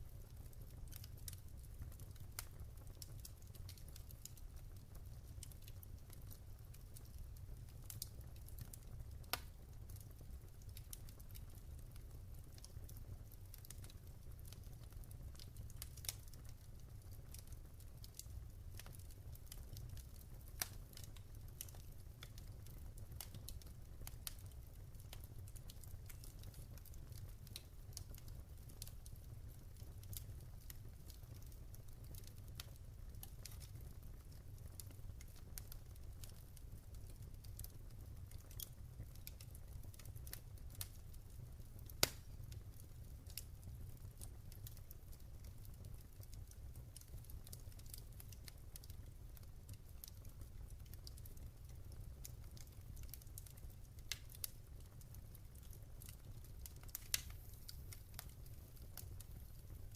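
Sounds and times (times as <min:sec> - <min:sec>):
low rumble of flames: 0:00.0 - 0:59.9
wood fire crackling: 0:00.0 - 0:59.9
sharp fire pops: 0:42.0 - 0:42.3.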